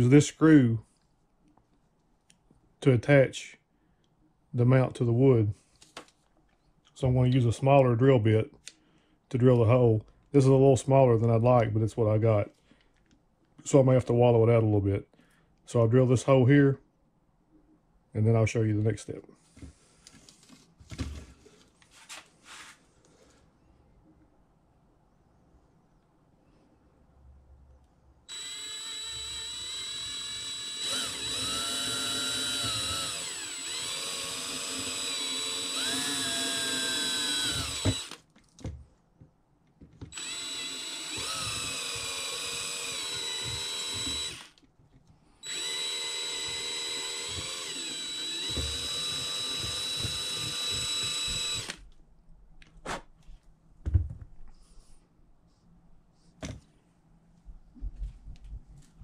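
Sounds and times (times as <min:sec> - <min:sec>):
drill whining into bone: 0:28.3 - 0:38.2, 0:40.1 - 0:44.6, 0:45.4 - 0:51.8.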